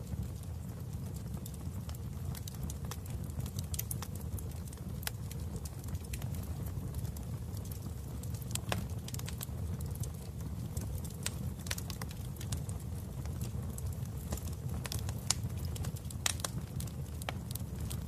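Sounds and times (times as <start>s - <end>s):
fire pops and snaps: 0.0s - 18.0s
low rumble of flames: 0.0s - 18.0s.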